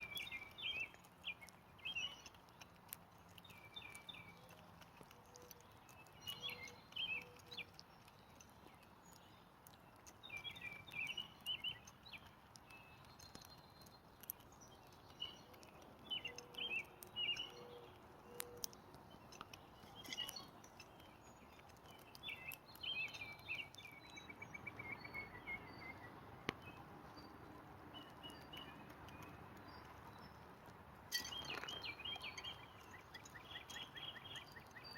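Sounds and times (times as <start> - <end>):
songbirds chirping: 0.0 - 34.9
faint clicks: 0.1 - 24.3.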